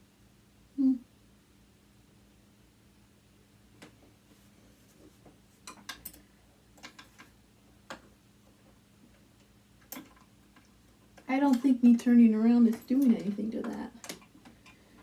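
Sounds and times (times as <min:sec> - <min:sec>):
screwdriver clicking on metal: 0:11.2 - 0:14.8.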